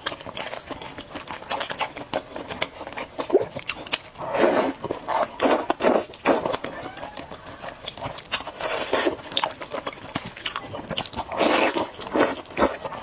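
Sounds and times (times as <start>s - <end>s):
wet chewing clicks: 0.0s - 13.0s
slurping noodles: 3.3s - 9.6s, 10.2s - 13.0s.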